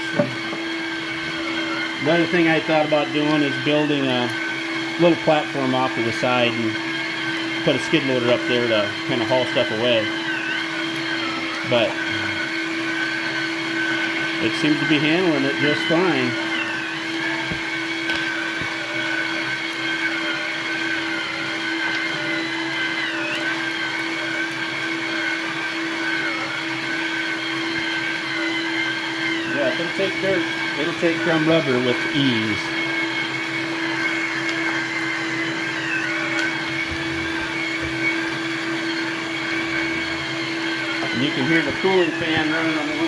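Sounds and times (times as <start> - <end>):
small electric motors whining: 0.0 - 43.0
cooling fan whine: 27.2 - 43.0.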